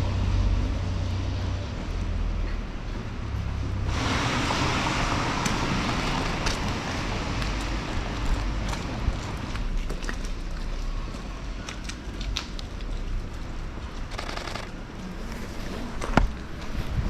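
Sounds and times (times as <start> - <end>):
low city rumble: 0.0 - 17.0
camera shutter burst: 14.1 - 14.7
small clicks: 14.1 - 14.8.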